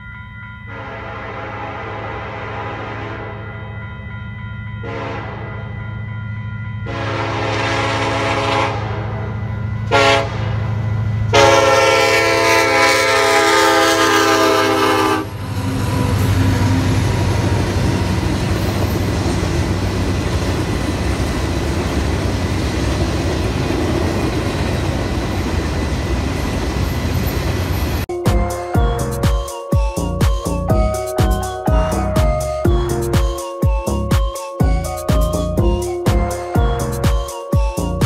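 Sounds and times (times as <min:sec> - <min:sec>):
locomotive horn blasts: 0:00.7 - 0:03.5, 0:04.8 - 0:05.6, 0:06.9 - 0:10.6, 0:11.3 - 0:17.0.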